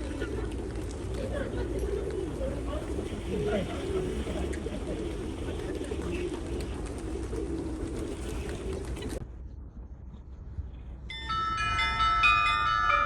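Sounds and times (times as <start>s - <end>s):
chiming bell-like melody: 11.1s - 13.0s.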